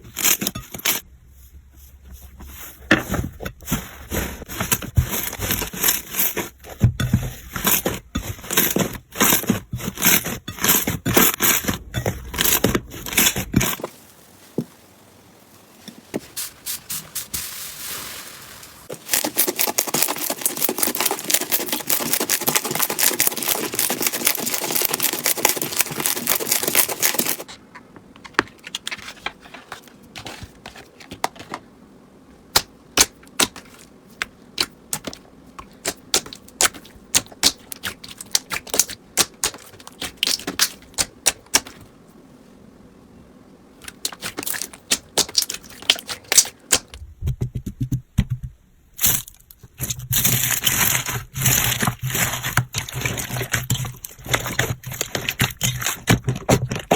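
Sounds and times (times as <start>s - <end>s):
slime crackling: 18.4s - 27.5s, 43.9s - 46.9s
slime squishing: 18.8s - 27.5s, 34.6s - 41.8s, 43.8s - 46.9s, 49.0s - 56.9s.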